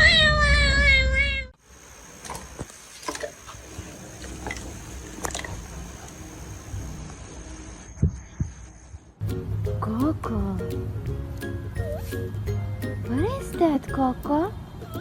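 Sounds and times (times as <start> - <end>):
cat meowing: 0.0 - 1.5.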